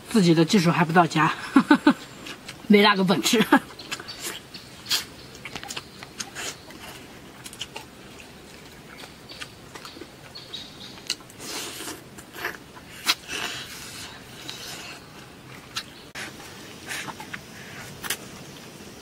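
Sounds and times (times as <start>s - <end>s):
chewing and mouth smacks: 3.7s - 16.0s.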